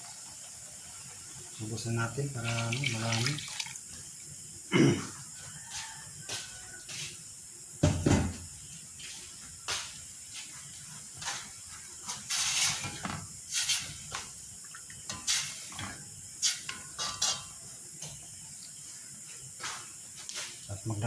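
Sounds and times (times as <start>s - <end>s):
steady hiss: 0.0s - 5.3s, 6.7s - 21.0s
pot and utensils knocking: 16.7s - 17.6s.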